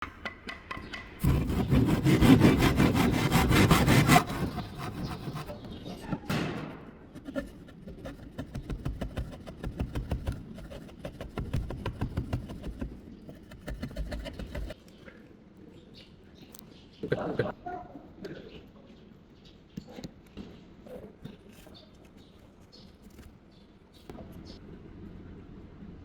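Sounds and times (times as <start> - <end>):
hand saw rasping through wood: 1.2 - 5.7, 7.2 - 14.8.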